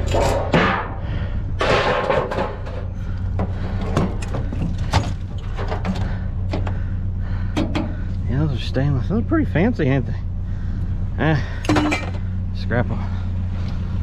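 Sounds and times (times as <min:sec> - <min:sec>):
rustling and scraping: 0:00.0 - 0:06.8
junk knocking and clanking: 0:00.0 - 0:08.4, 0:11.4 - 0:12.4
steady low hum: 0:00.0 - 0:14.0.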